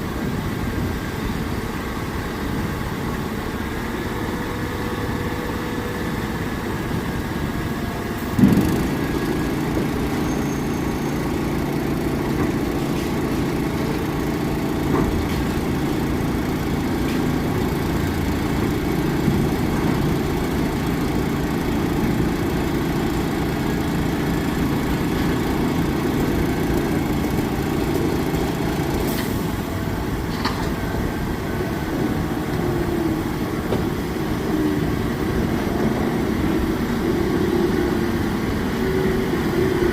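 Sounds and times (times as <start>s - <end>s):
heavy diesel engines idling: 0.0s - 39.9s
sharp thump: 8.3s - 9.0s.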